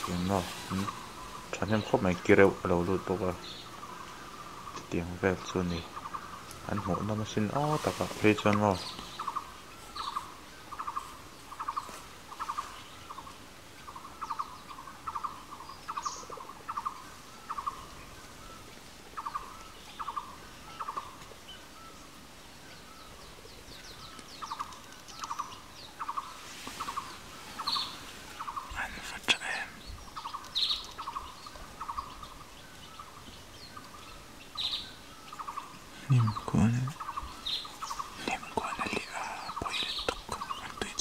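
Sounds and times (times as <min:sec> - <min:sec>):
bird rattling call: 0:24.0 - 0:28.7.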